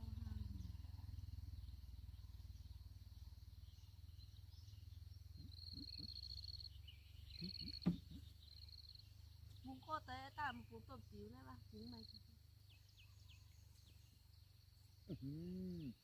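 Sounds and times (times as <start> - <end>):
insects trilling: 0.0 - 16.0
low steady rumble: 0.0 - 16.0
soft thuds: 7.7 - 8.3.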